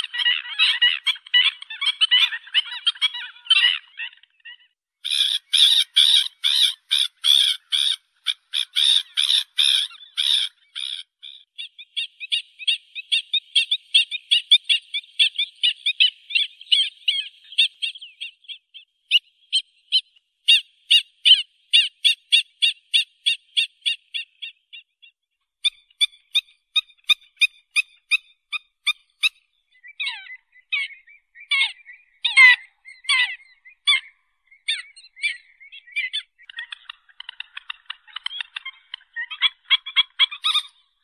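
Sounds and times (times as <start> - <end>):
birds calling with sharp notes: 0.0 - 41.0.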